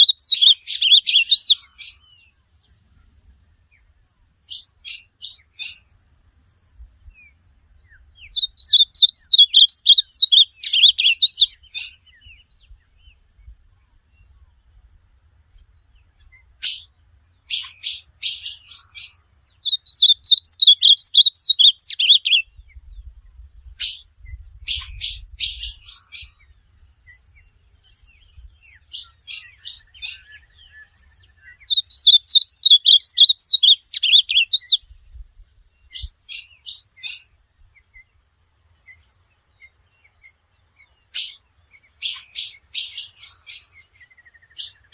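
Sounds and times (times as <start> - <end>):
bird chipping notes: 0.0 - 2.4, 4.3 - 5.9, 8.0 - 12.5, 15.6 - 22.4, 27.5 - 34.9, 41.0 - 44.9
bird singing warbled phrases: 0.0 - 44.9.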